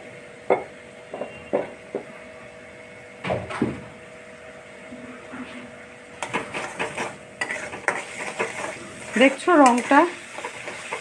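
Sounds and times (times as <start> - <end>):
electrical hum: 0.0 - 11.0
spatula scraping cooking pan: 6.2 - 11.0.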